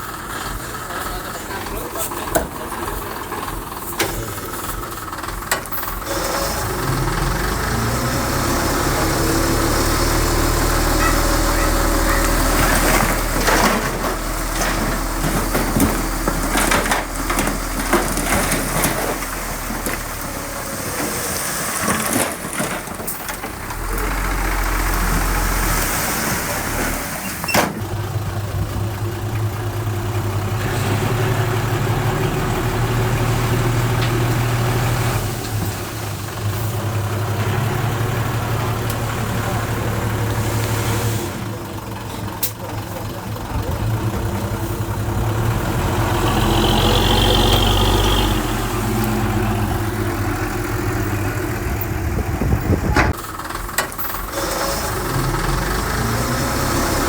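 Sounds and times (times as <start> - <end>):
diesel machinery running: 0.0 - 57.0
metallic clanks and knocks: 11.0 - 20.4.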